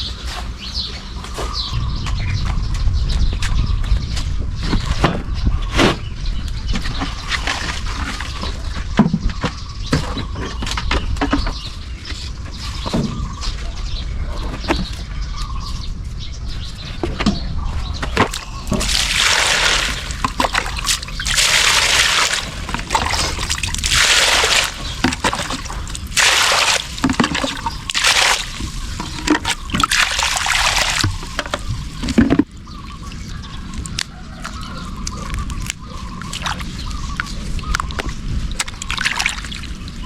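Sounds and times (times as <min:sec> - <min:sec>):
low steady rumble: 0:01.7 - 0:04.7
water sloshing and splashing: 0:18.2 - 0:34.6, 0:35.6 - 0:37.0, 0:37.6 - 0:40.0.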